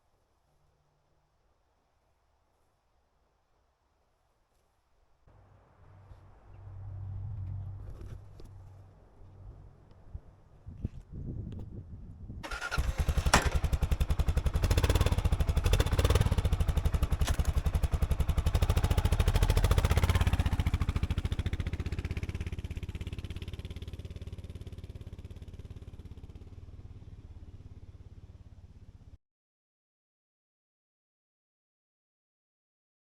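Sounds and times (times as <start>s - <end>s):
motorcycle engine running: 5.4s - 10.2s, 12.4s - 29.2s.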